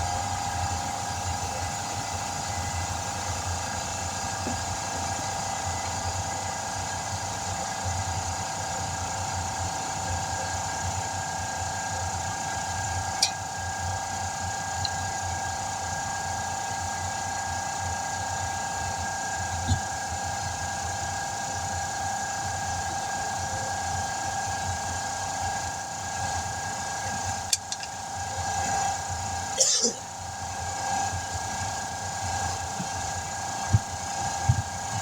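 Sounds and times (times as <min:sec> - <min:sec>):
machine whining and rumbling: 0:00.0 - 0:35.0
sharp click: 0:27.5 - 0:28.0.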